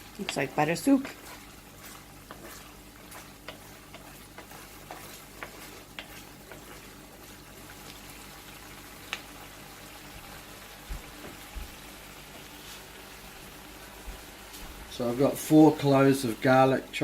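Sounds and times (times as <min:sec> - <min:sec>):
onions sizzling in butter: 0:00.0 - 0:17.0
sharp ticks and pops: 0:09.1 - 0:09.3.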